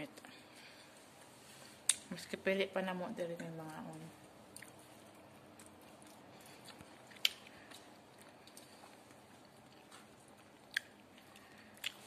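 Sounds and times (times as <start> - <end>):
chewing crunchy fish: 4.5 - 12.0.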